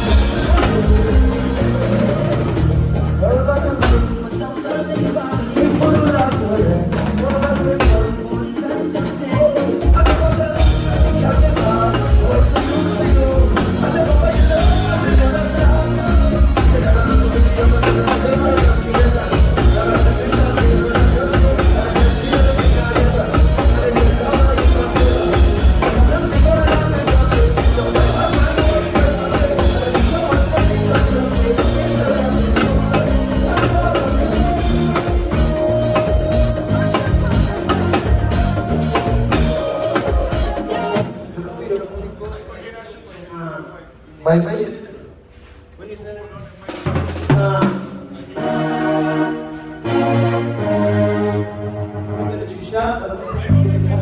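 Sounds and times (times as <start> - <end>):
bass: 0.0 - 41.2, 49.8 - 54.0
person singing lead vocal: 0.0 - 41.5
drums: 0.0 - 44.0, 45.0 - 48.6, 53.3 - 54.0.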